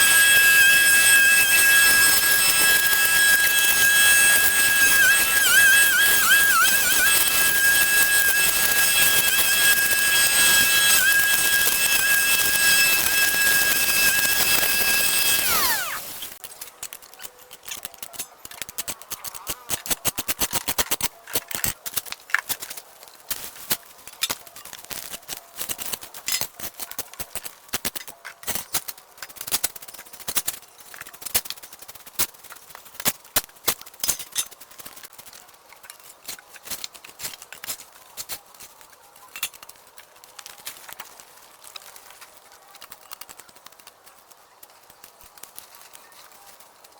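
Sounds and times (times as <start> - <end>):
small motor whining: 0.0 - 16.4.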